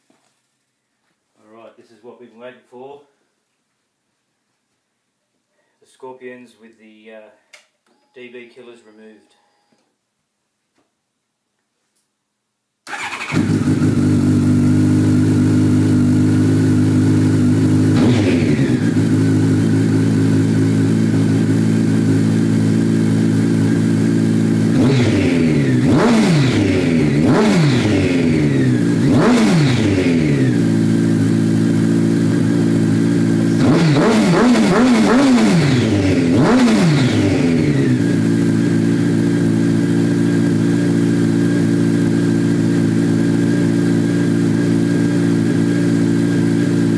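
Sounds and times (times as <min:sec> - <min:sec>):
motorcycle engine idling and revving: 0:12.9 - 0:46.9.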